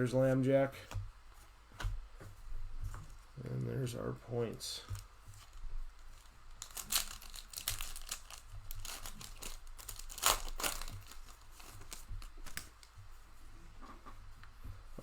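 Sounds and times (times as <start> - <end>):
foil wrapper crinkling and tearing: 4.9 - 12.9.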